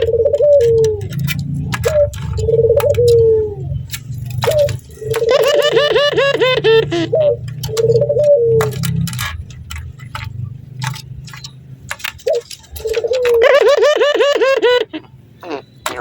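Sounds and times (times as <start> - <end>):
sharp clicks: 0.0 - 6.6, 7.4 - 13.6
dove laughing call: 0.0 - 11.4, 12.2 - 16.0.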